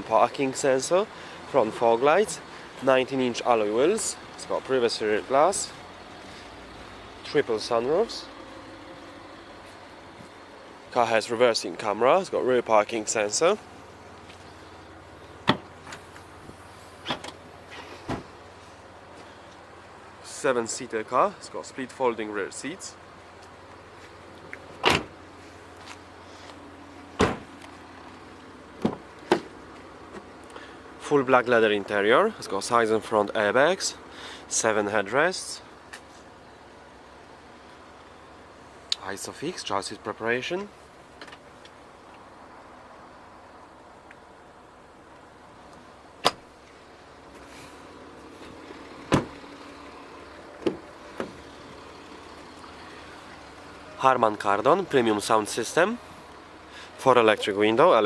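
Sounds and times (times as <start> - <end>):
car fittings clunking shut: 15.4 - 16.0, 17.0 - 18.3, 24.6 - 25.2, 27.2 - 27.6, 28.8 - 29.5, 46.2 - 46.5, 48.5 - 49.5, 50.6 - 51.4.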